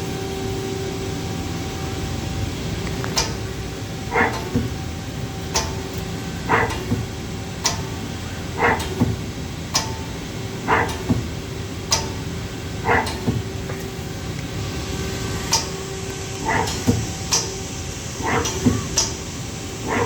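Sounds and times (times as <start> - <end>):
lathe machine hum: 0.0 - 20.0
mechanical clicks and knocks: 2.8 - 14.0, 15.4 - 19.3.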